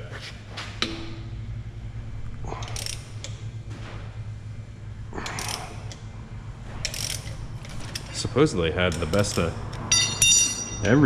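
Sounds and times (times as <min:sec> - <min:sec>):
steady low hum: 0:00.0 - 0:11.0
hand ratchet clicking: 0:02.6 - 0:03.4, 0:05.2 - 0:06.1, 0:06.8 - 0:08.2, 0:08.8 - 0:10.7.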